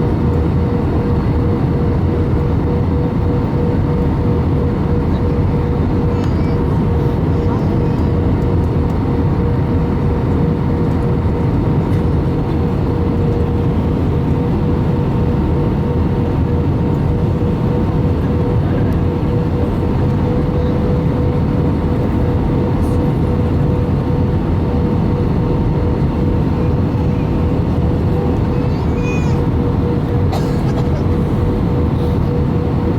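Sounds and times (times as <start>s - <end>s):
steady engine hum: 0.0s - 32.9s
airliner cabin rush: 24.8s - 32.4s.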